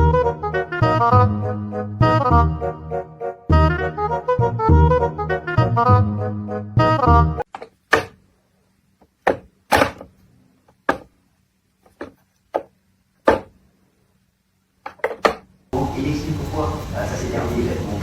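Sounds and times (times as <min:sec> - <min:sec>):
sharp knocks: 0:07.5 - 0:08.2, 0:09.2 - 0:10.1, 0:10.8 - 0:11.2, 0:11.9 - 0:13.6.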